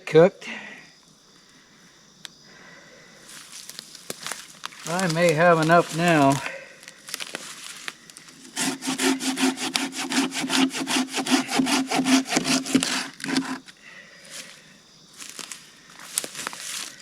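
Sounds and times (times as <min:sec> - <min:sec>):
hand saw cutting wood: 0:04.9 - 0:06.4, 0:08.4 - 0:13.7.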